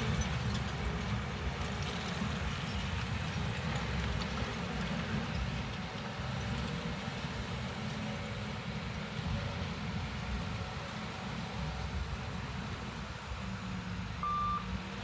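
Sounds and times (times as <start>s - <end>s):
heavy machinery engine rumble: 0.0s - 10.8s.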